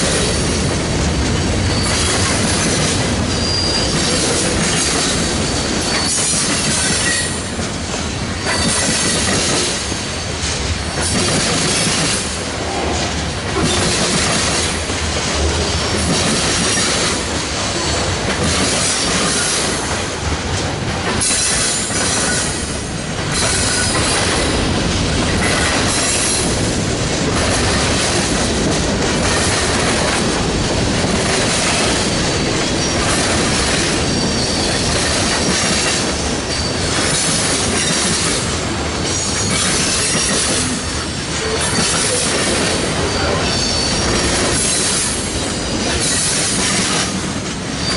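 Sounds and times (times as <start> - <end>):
train wheels clattering over joints: 0.0 - 47.9
high wheel squeal: 1.6 - 2.2, 3.3 - 4.4, 5.4 - 7.5, 34.0 - 35.0, 39.1 - 46.2.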